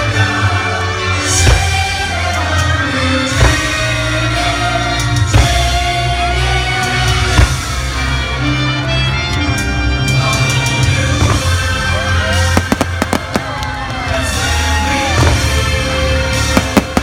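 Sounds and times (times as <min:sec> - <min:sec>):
loud music playing: 0:00.5 - 0:17.0
firework bangs: 0:12.5 - 0:15.6, 0:16.3 - 0:17.0.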